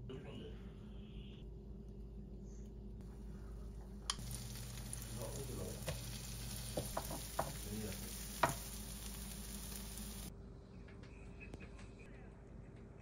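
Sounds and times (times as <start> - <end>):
batter sizzling in oil: 4.1 - 10.3
utensil tapping pan: 5.7 - 9.2.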